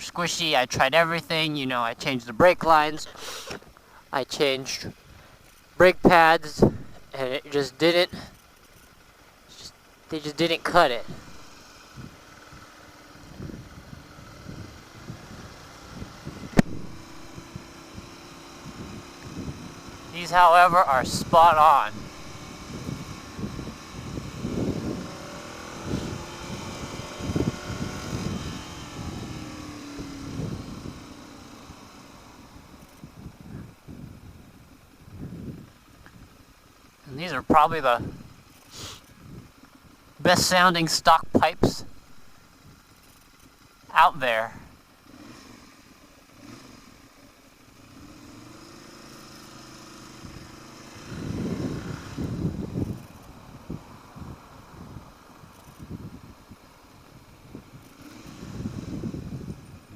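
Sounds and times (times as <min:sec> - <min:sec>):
motorcycle engine running: 0:00.0 - 0:59.9
wind noise on microphone: 0:06.6 - 0:07.0, 0:12.0 - 0:19.9, 0:21.1 - 0:31.8, 0:32.7 - 0:36.3, 0:39.2 - 0:39.5, 0:50.2 - 0:59.9.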